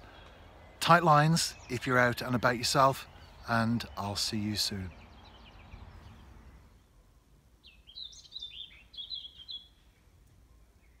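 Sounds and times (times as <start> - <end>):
faint outdoor background noise: 0.0 - 11.0
small bird chirping: 7.6 - 11.0.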